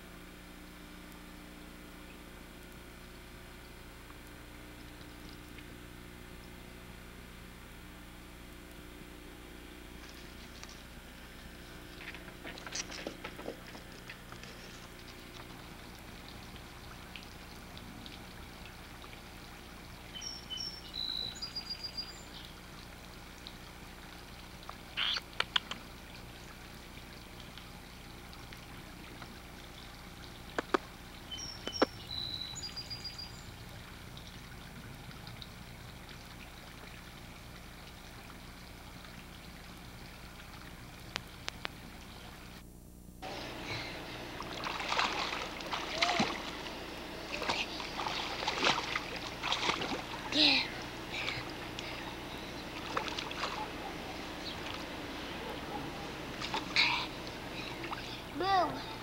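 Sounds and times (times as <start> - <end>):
camcorder hum and hiss: 0.0 - 59.0
water splashing in a pool: 9.5 - 42.6, 43.2 - 59.0
small bird chirping: 20.1 - 22.6, 25.0 - 25.8, 30.6 - 33.5.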